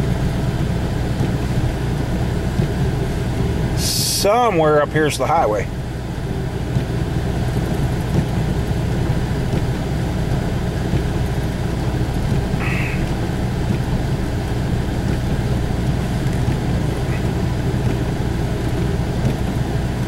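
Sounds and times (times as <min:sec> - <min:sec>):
vehicle engine drone inside cab: 0:00.0 - 0:20.0.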